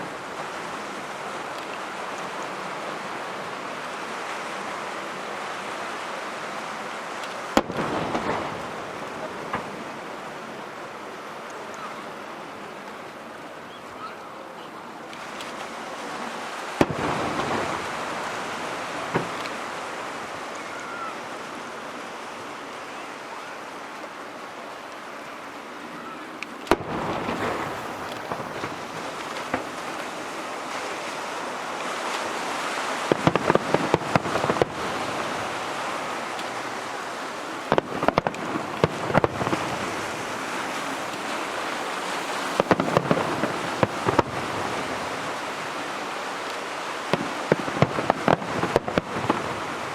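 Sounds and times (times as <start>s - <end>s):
steady hiss: 0.0s - 49.9s
sharp firework cracks: 7.2s - 9.9s, 16.7s - 19.8s, 26.6s - 32.4s, 33.0s - 49.9s
heavy firework shell bursts: 26.7s - 30.5s, 37.6s - 45.7s.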